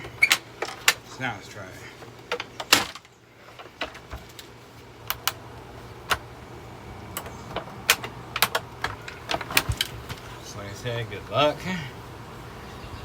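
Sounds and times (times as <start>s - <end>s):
vacuum cleaner parts clicking: 0.0s - 1.2s, 1.9s - 6.3s, 7.1s - 10.4s.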